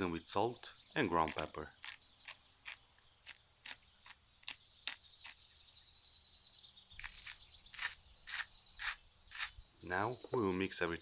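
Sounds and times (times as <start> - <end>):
pepper mill grinding clicks: 1.3 - 2.0, 2.6 - 4.6.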